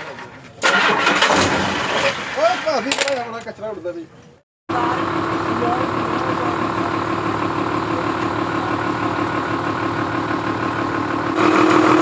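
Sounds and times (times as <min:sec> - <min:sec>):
truck diesel engine idling: 0:04.7 - 0:12.0.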